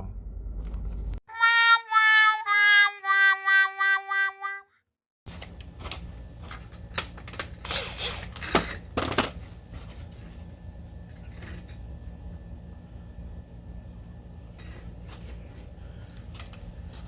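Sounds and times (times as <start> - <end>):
steady low hum: 5.3 - 17.0.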